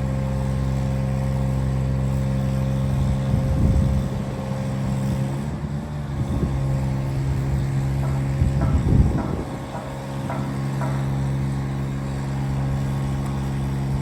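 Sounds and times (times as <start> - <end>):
truck engine running: 0.0 - 14.0
clunks and rattles: 7.6 - 12.2.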